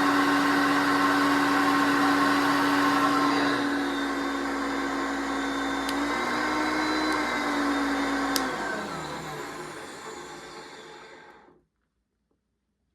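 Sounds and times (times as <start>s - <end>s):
vacuum cleaner running: 0.0s - 11.6s
motor winding down: 5.2s - 11.5s
vacuum switch click: 8.3s - 8.6s.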